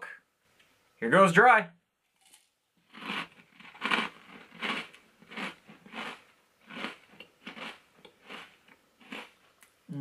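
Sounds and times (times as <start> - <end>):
person chewing crunchy cereal: 2.2 - 9.4.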